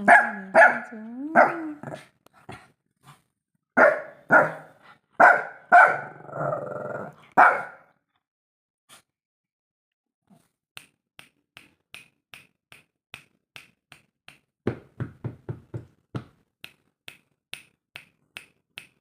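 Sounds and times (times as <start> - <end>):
dog barking: 0.0 - 2.0, 3.8 - 6.3, 7.4 - 7.9
dog growling: 1.5 - 2.7, 6.0 - 7.3.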